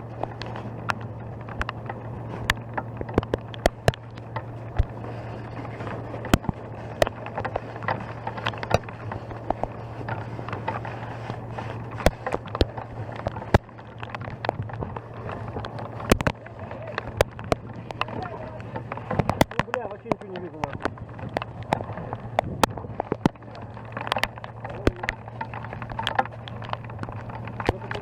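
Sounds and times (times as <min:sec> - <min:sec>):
low engine hum: 0:00.0 - 0:28.0
sharp cracks and clicks: 0:00.0 - 0:28.0.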